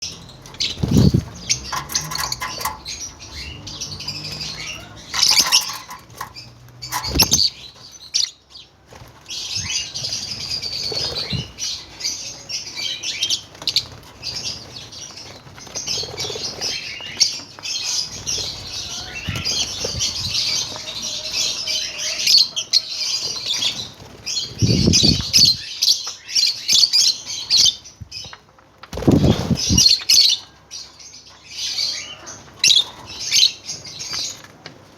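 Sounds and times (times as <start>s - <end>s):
lovebirds chirping: 0.0s - 28.4s
wing flutters and thumps: 0.5s - 3.2s, 5.1s - 7.6s.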